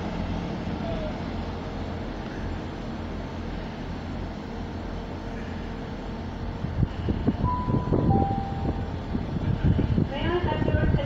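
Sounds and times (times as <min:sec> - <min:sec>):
diesel train rumble: 0:00.0 - 0:11.0
two-note train horn: 0:07.5 - 0:09.2.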